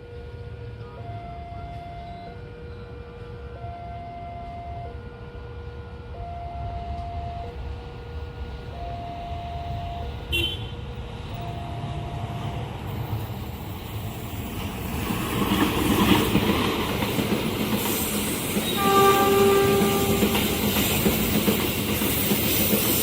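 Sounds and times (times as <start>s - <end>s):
train running noise: 0.0s - 23.0s
crossing alarm two-pitch tones: 1.0s - 2.9s, 3.5s - 5.1s, 6.1s - 7.6s, 8.7s - 10.3s, 11.3s - 12.7s
locomotive horn blast: 8.7s - 12.6s, 18.7s - 20.7s.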